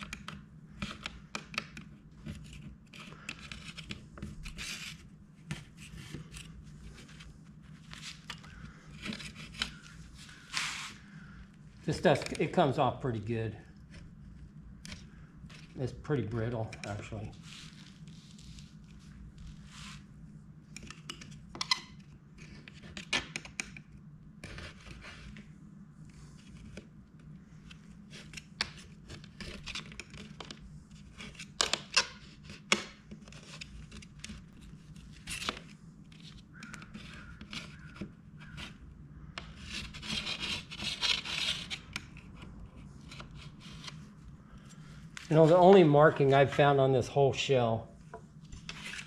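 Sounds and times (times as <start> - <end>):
steady low hum: 0.0 - 49.0
putty tape being scraped off: 9.0 - 11.0.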